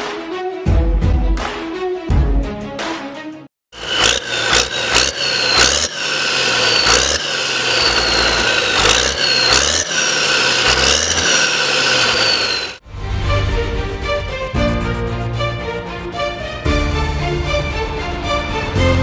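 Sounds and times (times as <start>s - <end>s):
harvest machinery running: 3.8s - 12.8s
high-pitched whine of drives: 3.8s - 12.8s.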